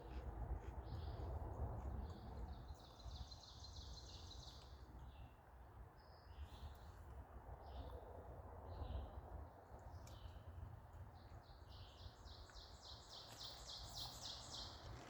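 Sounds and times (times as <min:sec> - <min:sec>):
birds chirping and trilling: 0:11.7 - 0:15.0.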